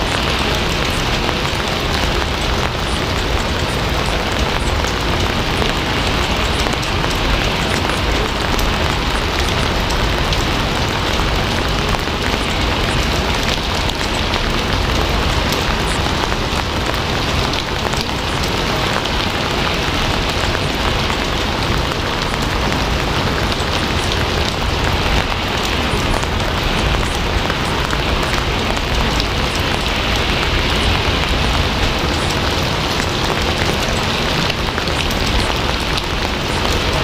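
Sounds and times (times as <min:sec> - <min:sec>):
steady rain hiss: 0:00.0 - 0:37.0.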